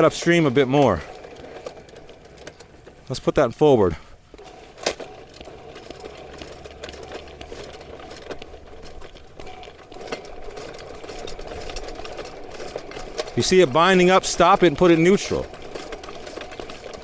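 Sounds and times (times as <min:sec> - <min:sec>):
drain snake motor humming: 0:05.1 - 0:17.0.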